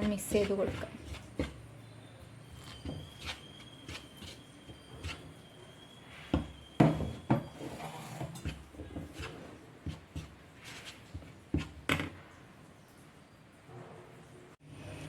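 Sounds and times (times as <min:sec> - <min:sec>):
utensil knocking and scraping bowl: 0:00.0 - 0:01.8, 0:02.5 - 0:12.2.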